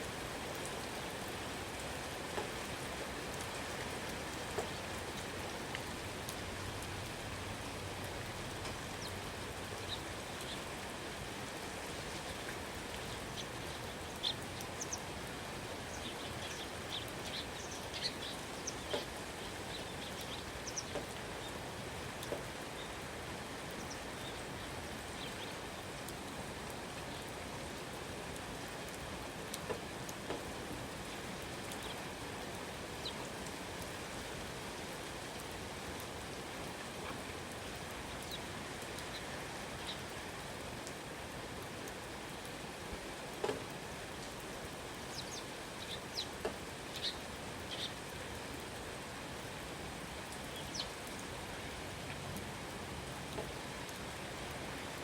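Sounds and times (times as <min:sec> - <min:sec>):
louder raindrops landing: 0:00.0 - 0:32.2
steady rain falling: 0:00.0 - 0:55.0.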